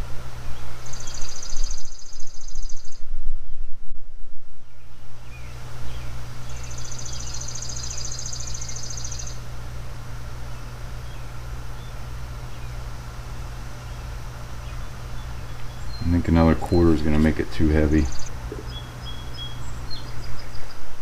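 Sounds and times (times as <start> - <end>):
steady low hum: 0.0 - 21.0
insect buzzing: 0.8 - 3.1, 5.9 - 9.6
faint bird chirps: 0.8 - 3.7, 4.7 - 9.4, 18.0 - 20.9.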